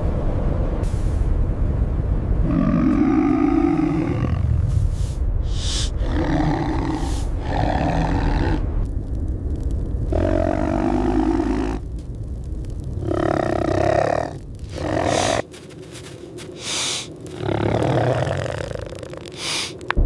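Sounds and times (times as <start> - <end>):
steady low rumble: 0.0 - 20.0
tiger roaring and growling: 2.4 - 4.6, 5.6 - 8.8, 10.1 - 11.9, 12.9 - 15.4, 17.3 - 19.3.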